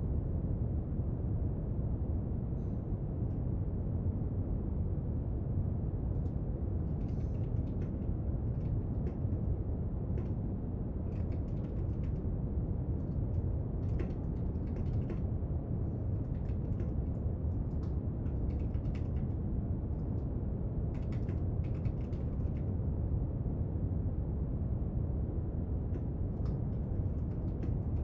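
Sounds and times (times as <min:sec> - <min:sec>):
small clicks and scratches: 0:06.2 - 0:09.5, 0:11.1 - 0:12.2, 0:13.0 - 0:15.3, 0:16.1 - 0:19.4, 0:21.0 - 0:22.6, 0:26.4 - 0:28.0.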